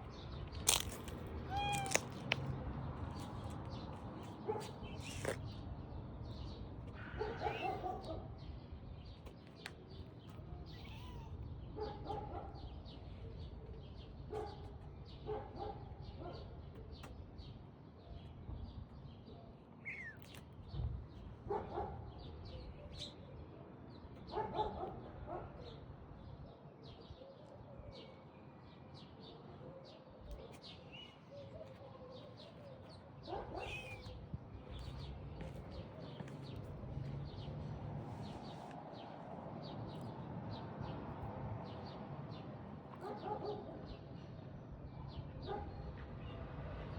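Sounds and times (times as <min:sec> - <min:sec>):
small birds chirping: 0:00.0 - 0:23.4, 0:30.2 - 0:41.0.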